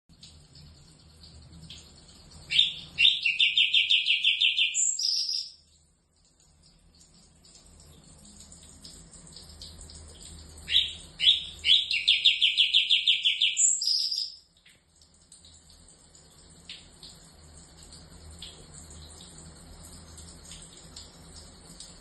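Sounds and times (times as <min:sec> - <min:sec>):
bird whistles and rattling trill: 0:02.5 - 0:05.6, 0:10.7 - 0:14.4.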